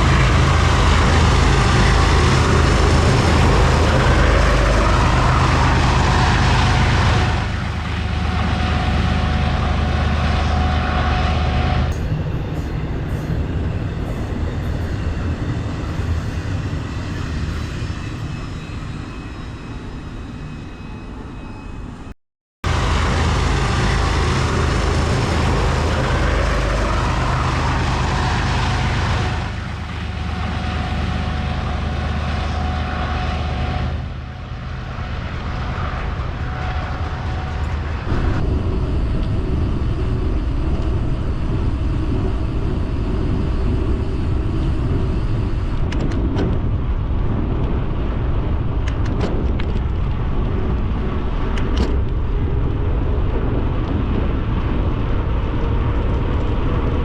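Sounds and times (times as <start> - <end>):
diesel train engine drone: 0.0 - 57.0
rail and wheel noise: 0.0 - 57.0.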